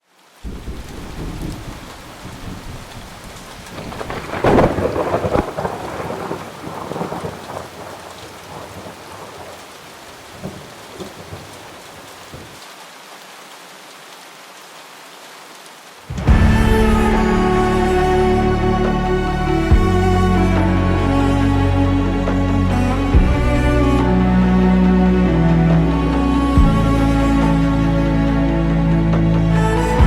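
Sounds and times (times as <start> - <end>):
heavy rain: 0.0 - 30.0
thunder rumbling: 0.4 - 12.6, 16.1 - 27.9
music: 16.1 - 30.0.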